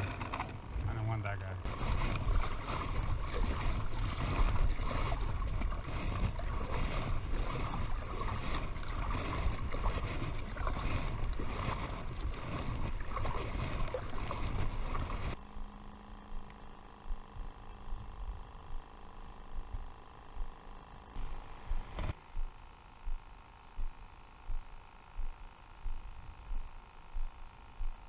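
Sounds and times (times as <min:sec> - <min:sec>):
water sloshing around kayak: 0:01.6 - 0:15.4
wind on microphone: 0:01.6 - 0:15.4.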